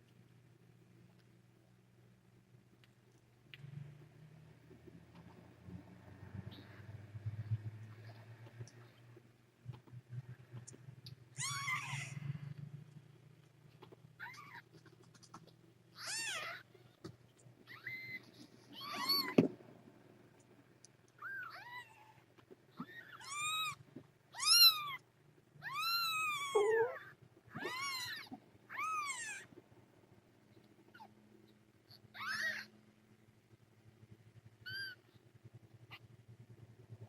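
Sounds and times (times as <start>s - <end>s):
kittens mewing: 11.4s - 12.4s, 13.8s - 19.5s, 22.8s - 25.0s, 25.6s - 29.5s, 31.9s - 32.7s, 34.6s - 35.0s.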